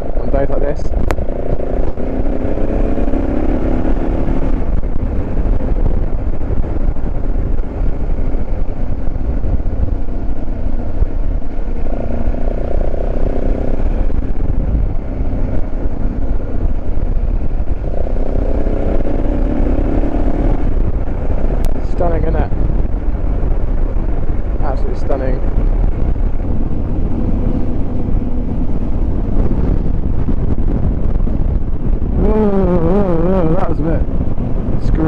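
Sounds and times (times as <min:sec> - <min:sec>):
motorcycle engine running: 0:00.0 - 0:35.0
wind noise on microphone: 0:00.0 - 0:35.0.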